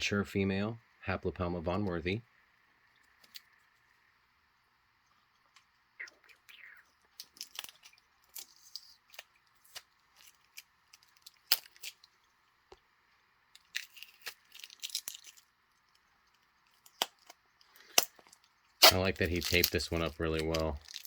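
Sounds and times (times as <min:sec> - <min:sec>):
tape tearing off plastic: 0:18.8 - 0:21.0.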